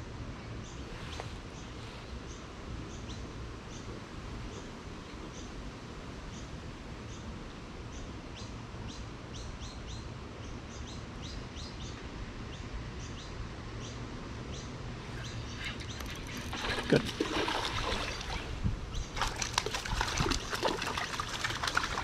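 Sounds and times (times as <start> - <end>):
low background noise: 0.0 - 22.0.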